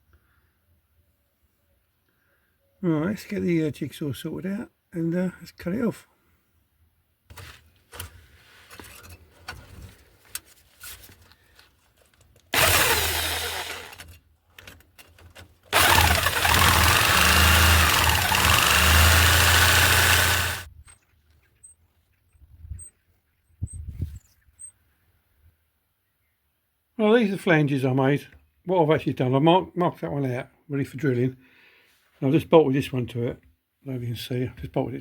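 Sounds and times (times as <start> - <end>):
electric jigsaw cutting metal pipe: 12.5 - 14.2, 15.7 - 20.7.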